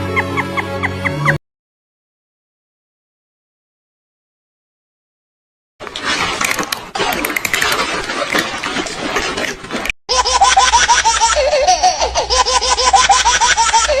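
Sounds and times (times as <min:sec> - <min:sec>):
baby laughing: 0:10.1 - 0:14.0.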